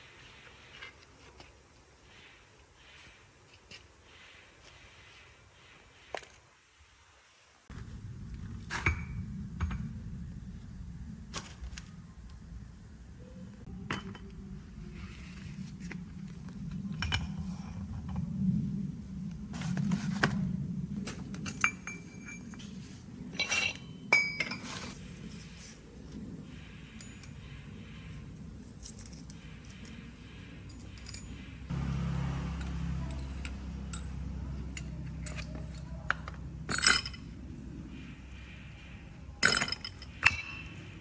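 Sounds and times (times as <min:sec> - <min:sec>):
steady low hum: 0:07.7 - 0:41.0
metal tools clinking: 0:23.3 - 0:25.0, 0:30.6 - 0:37.4, 0:39.4 - 0:41.0.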